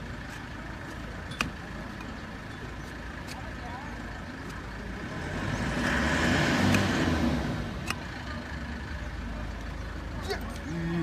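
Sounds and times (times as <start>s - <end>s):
vehicle engine passing by: 4.8s - 9.1s.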